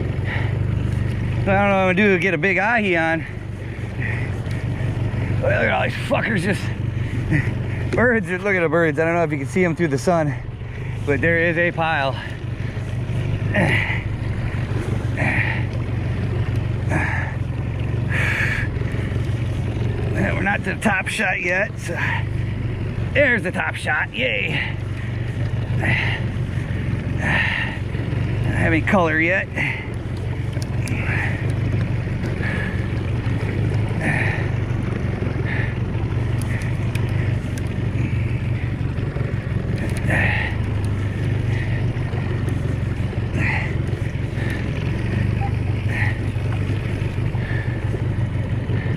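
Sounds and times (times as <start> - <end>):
boat motor running: 0.0 - 48.9
low underwater hum: 0.0 - 48.9
faint clicks: 29.9 - 33.9, 36.1 - 38.1, 39.6 - 47.4.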